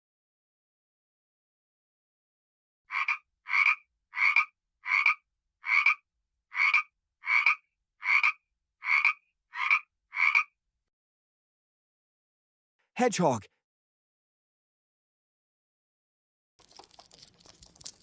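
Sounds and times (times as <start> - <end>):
frog croaking: 2.9 - 10.6.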